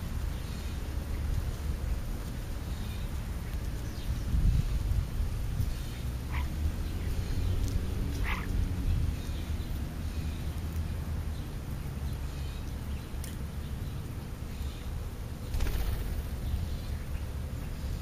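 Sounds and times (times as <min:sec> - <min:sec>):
bird chirps: 0:05.7 - 0:10.5.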